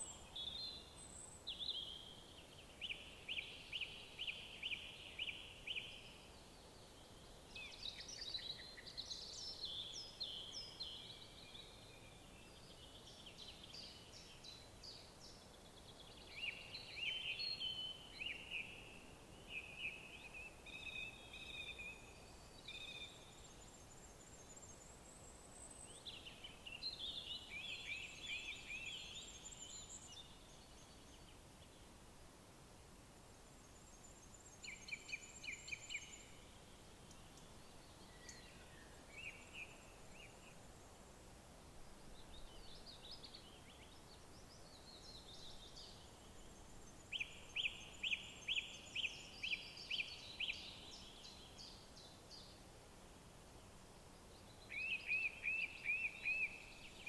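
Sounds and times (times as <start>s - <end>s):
songbirds singing trills: 0.0s - 31.9s, 33.6s - 40.7s, 42.0s - 52.6s, 54.2s - 57.0s
faint background noise: 0.0s - 57.0s.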